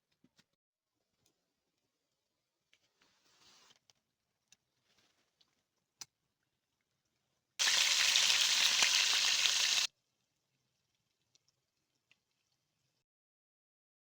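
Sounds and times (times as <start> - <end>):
food sizzling in hot oil: 7.6 - 9.9.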